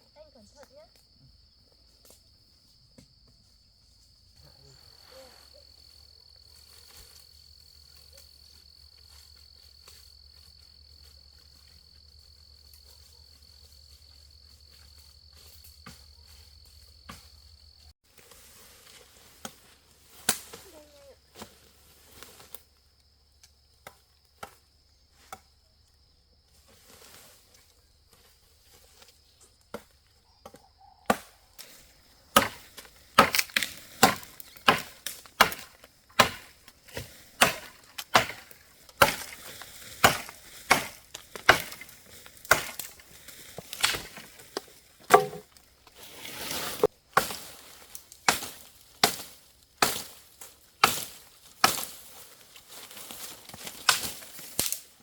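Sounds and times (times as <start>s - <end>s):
firewood chopping: 29.7s - 45.6s, 47.1s - 47.5s, 48.2s - 50.2s.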